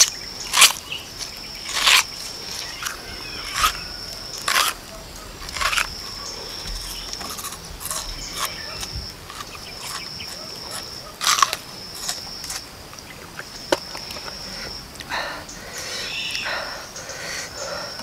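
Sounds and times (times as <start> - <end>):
high-pitched insect drone: 0.0 - 12.8
crunching and chewing onion: 0.0 - 14.4
mouth and breath noises: 14.0 - 18.0.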